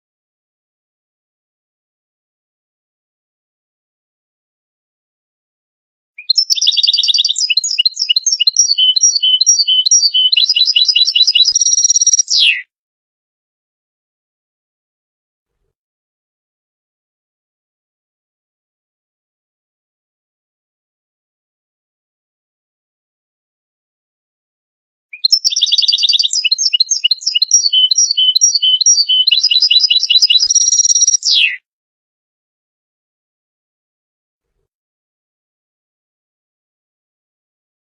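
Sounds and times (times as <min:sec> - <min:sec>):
goldfinch singing: 0:06.2 - 0:12.6, 0:25.2 - 0:31.5.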